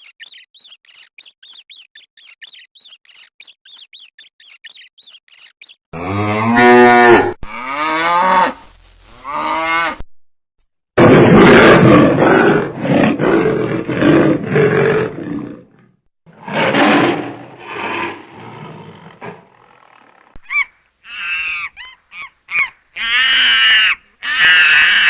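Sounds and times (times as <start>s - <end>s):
short high-pitched animal calls: 0.0s - 5.8s
large animal roaring: 11.0s - 15.8s.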